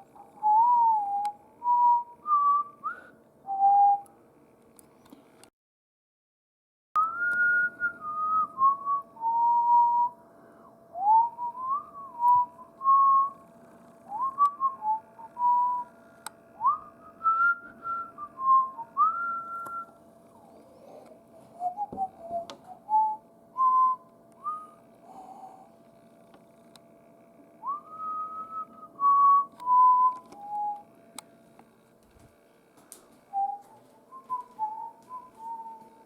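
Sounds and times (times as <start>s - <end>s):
faint steady hum: 0.0s - 5.5s, 7.0s - 36.0s
person whistling a tune: 0.2s - 4.1s, 7.0s - 10.2s, 11.0s - 13.4s, 14.1s - 15.9s, 16.6s - 20.8s, 21.4s - 25.6s, 27.6s - 30.8s, 33.3s - 36.0s.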